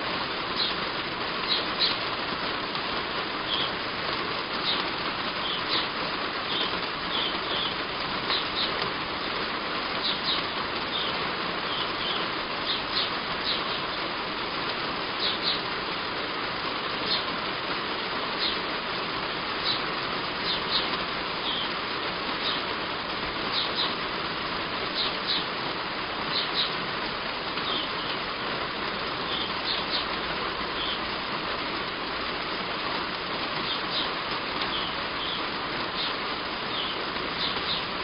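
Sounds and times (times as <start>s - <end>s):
heavy rain on a roof: 0.0s - 38.0s
high bird chirps: 36.0s - 37.8s.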